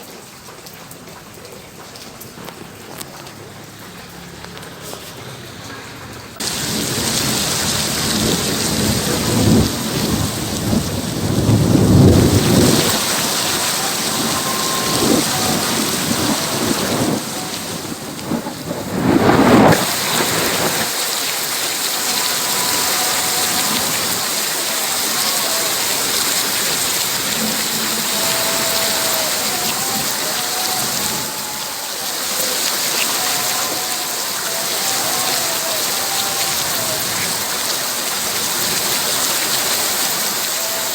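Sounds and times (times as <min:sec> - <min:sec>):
heavy rain pouring: 0:00.0 - 0:40.9
thunder rumbling: 0:06.4 - 0:33.2.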